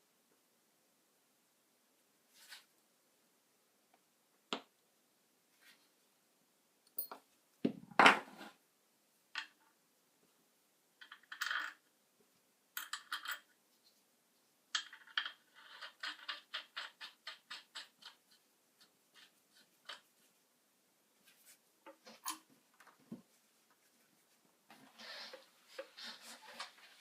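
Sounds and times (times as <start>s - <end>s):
small hard parts clinking: 6.9s - 7.2s.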